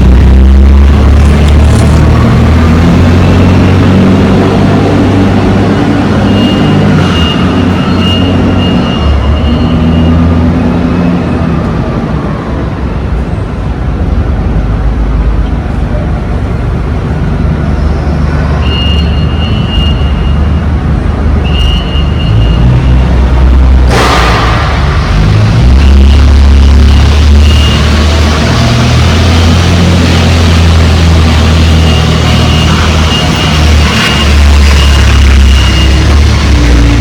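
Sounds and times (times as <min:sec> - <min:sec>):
truck diesel engine running: 0:00.0 - 0:37.0.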